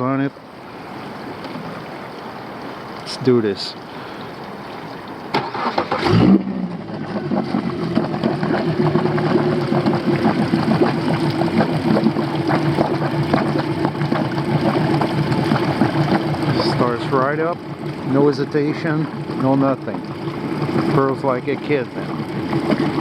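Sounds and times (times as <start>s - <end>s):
outboard motor idling: 2.3s - 23.0s
starter clicking and cranking: 5.3s - 11.8s.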